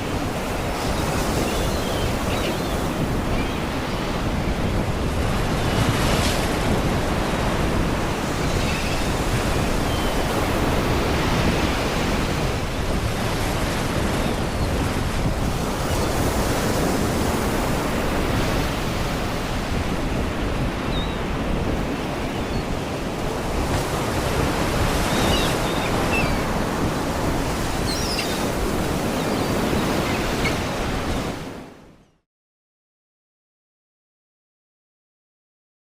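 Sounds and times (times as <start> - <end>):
sea waves against rocks: 0.0 - 31.6
seagulls crying: 0.3 - 4.7, 8.2 - 11.6, 20.3 - 31.6.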